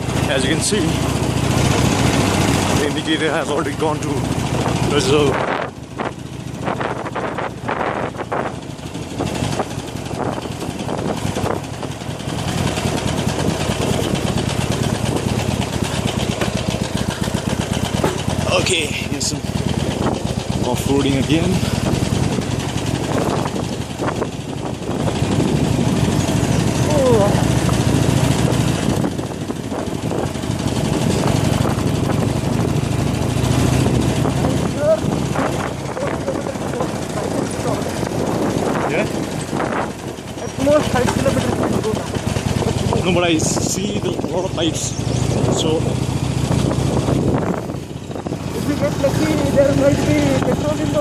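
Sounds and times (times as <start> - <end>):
motorcycle engine running: 0.0 - 51.0
knocks: 18.0 - 18.4.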